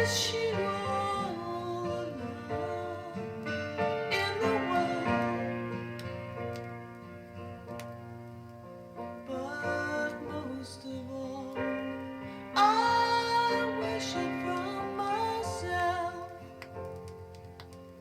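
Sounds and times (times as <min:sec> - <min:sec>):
woman singing: 0:00.0 - 0:05.7, 0:09.3 - 0:12.0, 0:12.6 - 0:16.6
solo piano: 0:00.0 - 0:18.0
record surface clicks: 0:07.7 - 0:08.0, 0:16.3 - 0:18.0.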